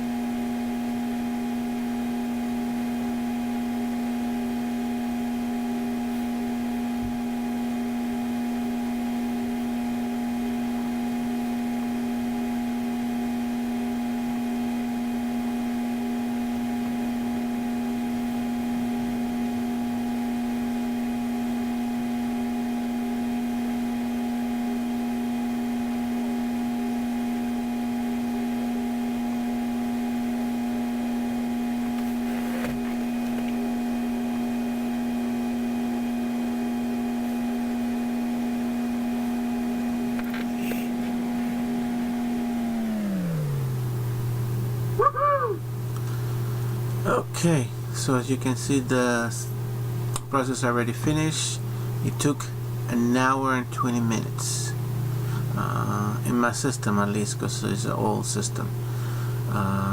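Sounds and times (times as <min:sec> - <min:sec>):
computer hum with whining tones: 0:00.0 - 0:59.9.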